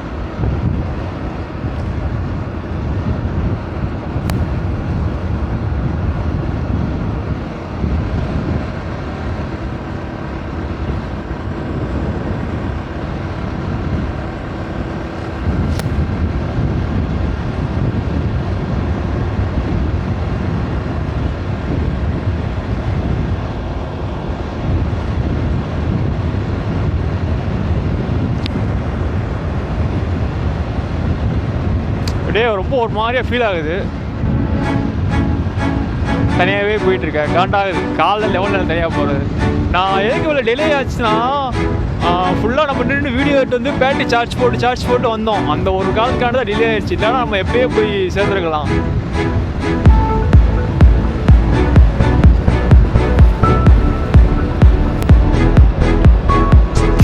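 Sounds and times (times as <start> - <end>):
wind rushing over microphone: 0.0 - 57.0
motorcycle engine running: 4.0 - 17.1, 48.8 - 57.0.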